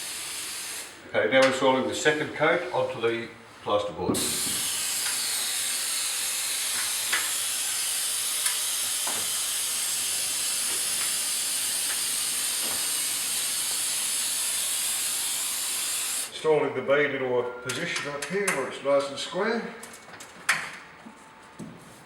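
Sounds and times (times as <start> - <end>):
aerosol spray hissing: 0.0 - 0.9, 4.2 - 16.3.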